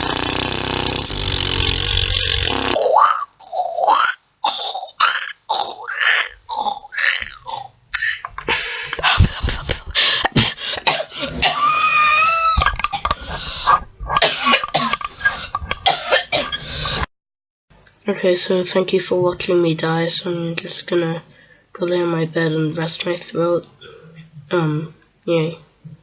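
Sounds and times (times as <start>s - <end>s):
high steady vocal tone: 0.0s - 8.4s
person making vocal mouth noises: 0.0s - 8.5s, 12.1s - 15.9s.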